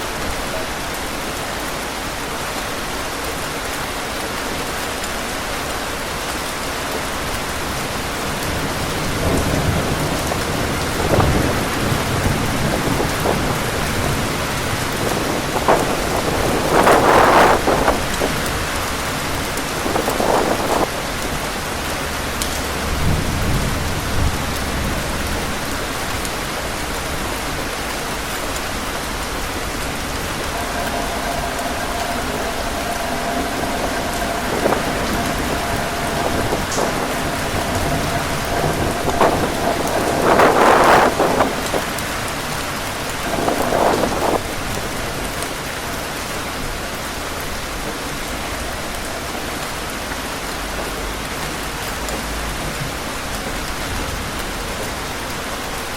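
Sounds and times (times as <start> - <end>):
heavy rain: 0.0 - 55.9
wind gusting: 7.6 - 20.9, 27.1 - 45.0
low rumble: 28.6 - 42.3.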